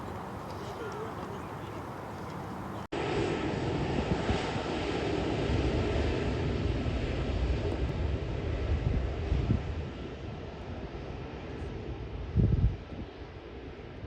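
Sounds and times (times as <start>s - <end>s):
jet engines rumbling: 0.0s - 2.9s.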